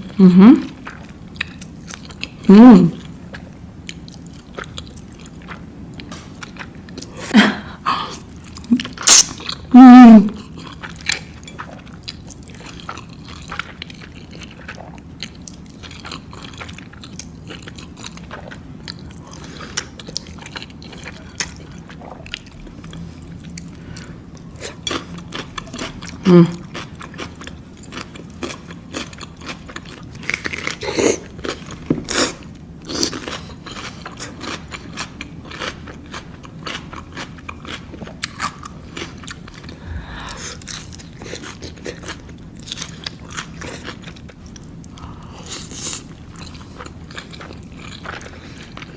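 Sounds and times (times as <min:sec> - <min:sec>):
person humming: 0:00.2 - 0:00.7, 0:02.5 - 0:03.0, 0:26.3 - 0:26.6, 0:39.8 - 0:40.6
wet chewing with crunchy bites: 0:00.8 - 0:07.2, 0:10.4 - 0:48.9.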